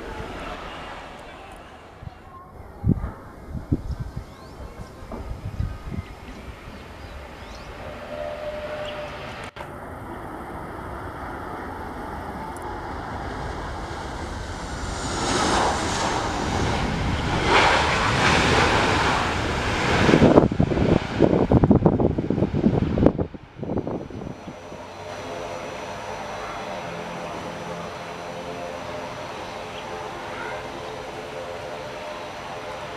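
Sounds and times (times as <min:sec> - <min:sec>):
wind buffeting microphone: 0:00.0 - 0:25.5
jet airliner passing: 0:00.0 - 0:32.9.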